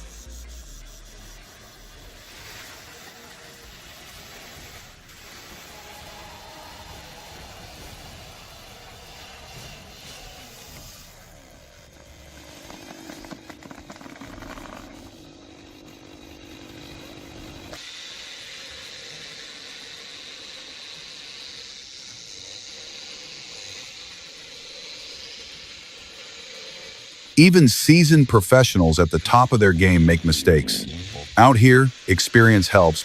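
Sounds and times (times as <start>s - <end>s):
high whine: 27.4s - 33.0s
forestry machinery engine running: 27.5s - 33.0s.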